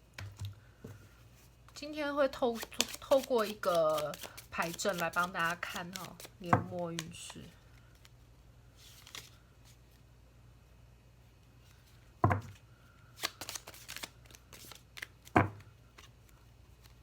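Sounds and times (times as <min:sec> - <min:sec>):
cards clicking and rustling: 0:02.5 - 0:08.1, 0:13.2 - 0:16.1.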